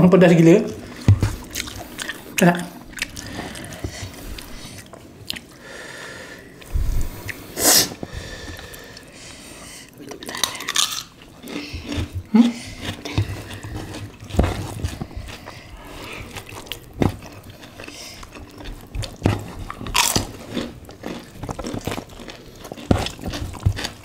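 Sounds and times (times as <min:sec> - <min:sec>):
chewing and biting food: 0:00.8 - 0:05.5, 0:09.9 - 0:24.0
sharp hiss: 0:06.8 - 0:08.0.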